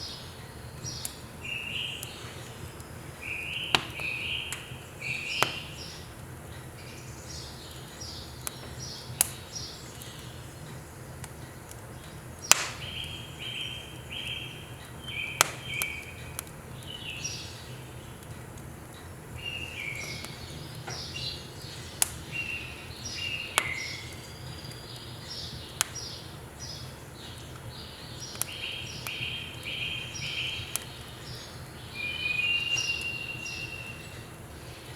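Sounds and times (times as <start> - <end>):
birds chirping: 0.0 - 18.2, 18.8 - 34.9
wood fire crackling: 0.0 - 34.9.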